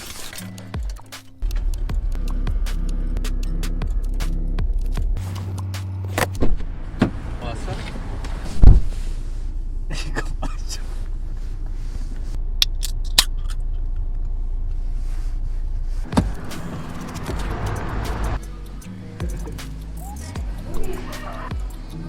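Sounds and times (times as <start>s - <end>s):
car engine low rumble: 1.4s - 22.0s
loud thump: 8.5s - 9.0s.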